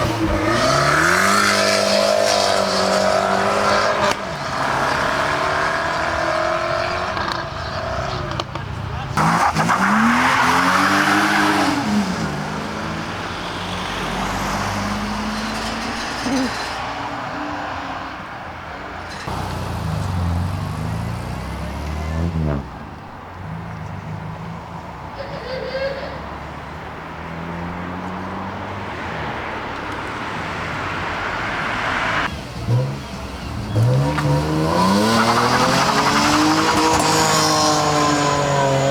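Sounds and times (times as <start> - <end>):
car engine accelerating: 0.0 - 16.8, 19.1 - 24.4, 30.7 - 38.9.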